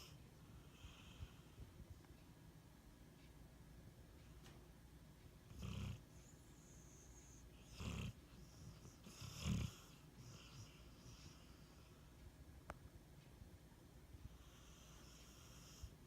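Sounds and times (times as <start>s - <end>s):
dog snoring: 5.5s - 11.9s, 14.3s - 16.0s.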